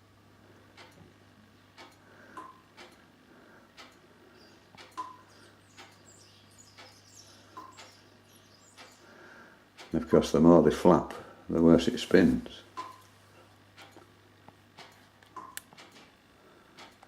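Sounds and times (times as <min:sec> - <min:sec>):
faint regular ticking: 0:00.6 - 0:10.4, 0:13.6 - 0:17.0.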